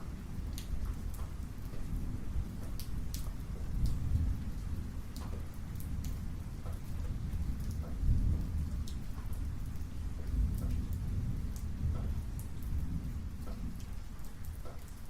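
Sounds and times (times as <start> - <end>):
raindrops ticking and dripping: 0.0 - 15.0
thunder rumbling: 3.4 - 14.0.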